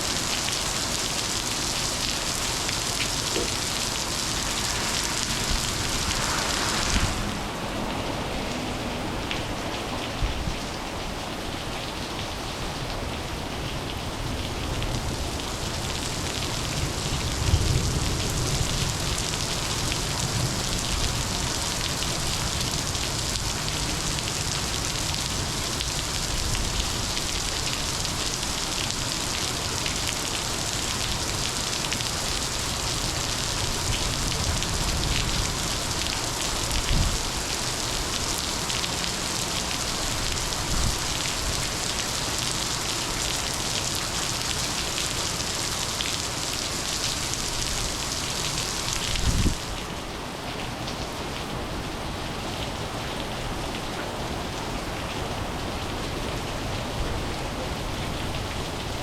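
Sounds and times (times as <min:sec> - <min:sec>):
heavy rain hissing: 0:00.0 - 0:10.2, 0:14.2 - 0:50.1
low thunder rumbles: 0:02.4 - 0:09.1.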